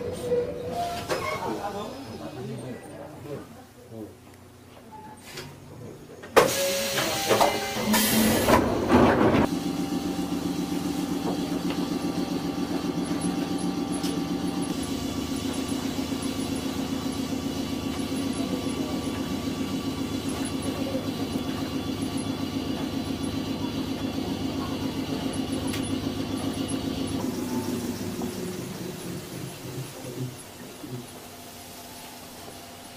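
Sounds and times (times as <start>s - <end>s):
train machinery running: 6.3s - 32.9s.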